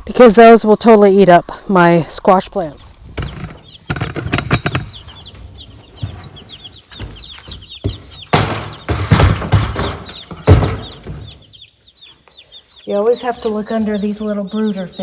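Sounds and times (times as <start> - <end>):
chicks peeping: 0.1 - 15.0
loud bumps: 3.1 - 11.6.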